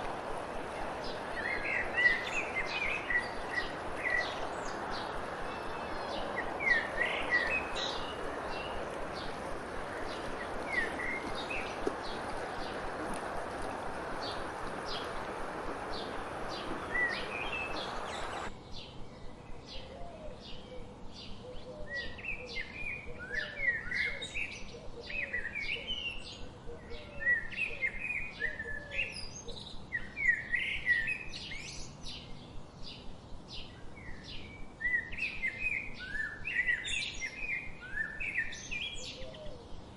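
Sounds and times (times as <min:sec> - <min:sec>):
rushing background noise: 0:00.0 - 0:18.6
songbirds singing and chirping: 0:00.0 - 0:39.9
lower bird calls: 0:00.8 - 0:18.5.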